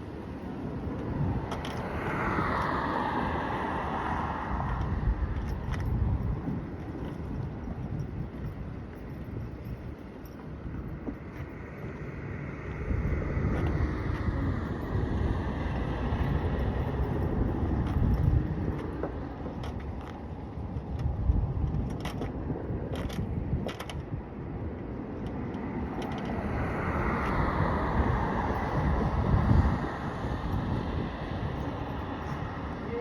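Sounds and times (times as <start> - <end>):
wind on microphone: 0.0 - 33.0
bicycle mechanism rattling and clicking: 16.1 - 29.6.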